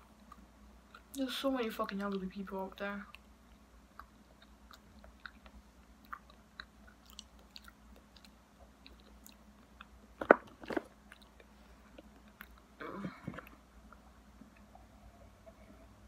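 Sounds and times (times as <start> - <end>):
wet mouth chewing clicks: 3.1 - 10.0.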